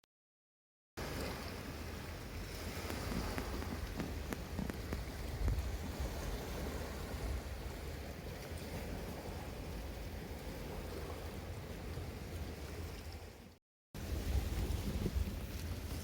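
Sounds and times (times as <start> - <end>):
waves rushing: 1.0 - 16.0
wind rumble on microphone: 1.0 - 16.0.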